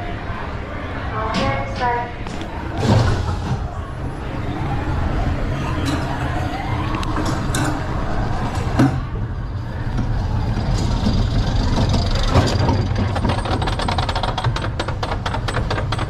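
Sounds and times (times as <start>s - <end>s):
roller coaster rumbling on track: 0.0s - 16.0s
rapid even clicking: 10.3s - 16.0s.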